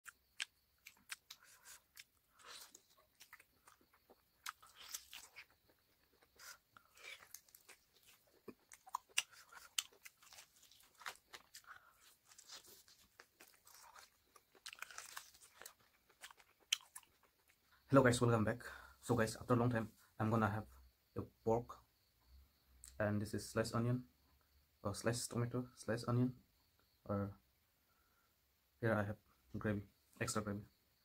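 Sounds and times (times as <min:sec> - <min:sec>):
person chewing meat: 0:00.1 - 0:17.6.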